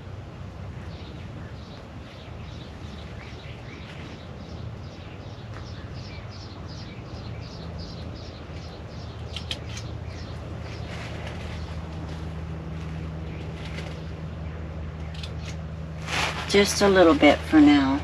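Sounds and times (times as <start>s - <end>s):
steady low hum: 0.0s - 18.0s
sharp click: 9.3s - 9.9s.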